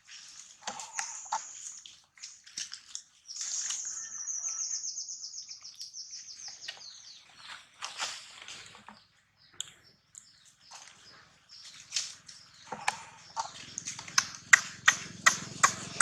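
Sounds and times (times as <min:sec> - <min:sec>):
sharp rustling knocks: 0:11.7 - 0:16.0.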